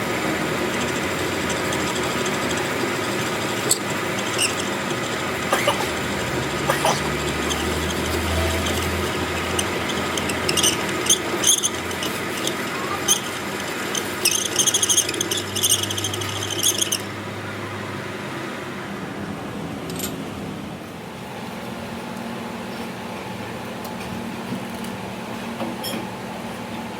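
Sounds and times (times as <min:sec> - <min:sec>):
workshop machinery running: 0:00.0 - 0:26.9
rapid scraping clatter: 0:00.2 - 0:17.2.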